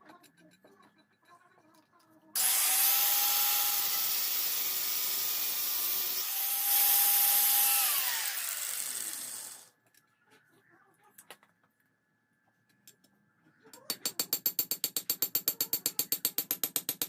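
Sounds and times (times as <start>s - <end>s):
power tool grinding: 2.4s - 9.7s.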